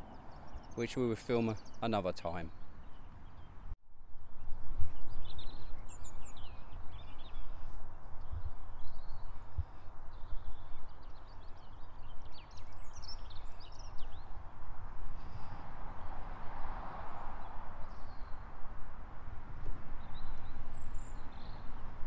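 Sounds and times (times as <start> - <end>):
small birds chirping: 0.0 - 3.7, 4.4 - 14.5, 20.0 - 21.7
wind rumble on microphone: 2.7 - 22.0.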